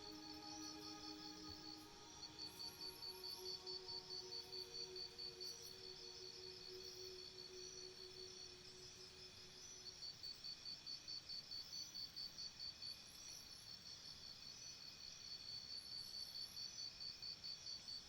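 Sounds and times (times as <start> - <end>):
low musical tone: 0.0 - 8.2
crickets chirping: 0.0 - 15.1.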